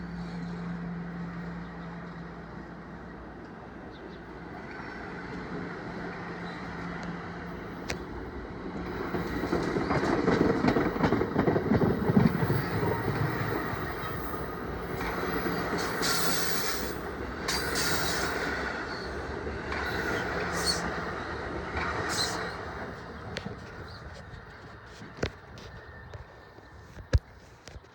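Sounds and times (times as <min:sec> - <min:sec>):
train wheels rumbling on rails: 0:00.0 - 0:27.9
high-pitched wheel squeals: 0:22.1 - 0:22.6.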